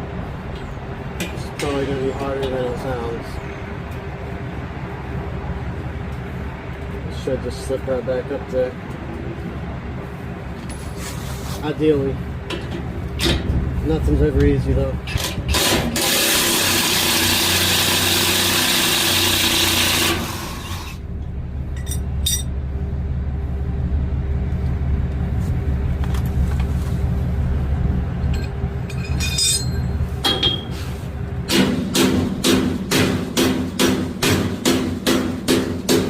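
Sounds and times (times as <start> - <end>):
vehicle engine idling: 0.0 - 15.1, 20.2 - 36.0
metallic clinks of tools: 21.8 - 22.5, 28.2 - 30.7.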